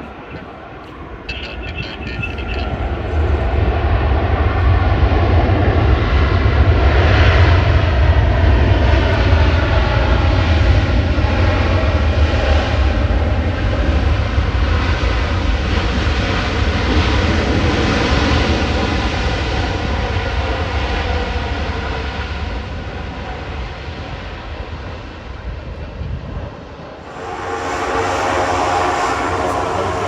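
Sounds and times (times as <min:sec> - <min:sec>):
faint engine whine: 0:00.0 - 0:04.6, 0:27.0 - 0:30.0
jet engines rumbling: 0:00.0 - 0:05.3, 0:26.9 - 0:30.0.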